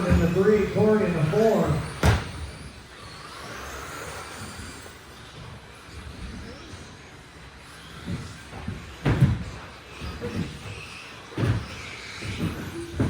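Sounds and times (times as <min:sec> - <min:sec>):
toy trucks thudding on track: 0:07.1 - 0:13.0.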